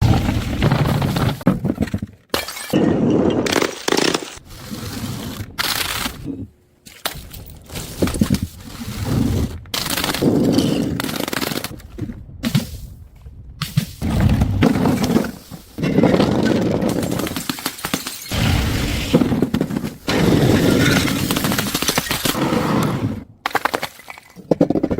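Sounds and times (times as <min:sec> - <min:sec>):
glass bottles shattering: 0:02.3 - 0:04.1.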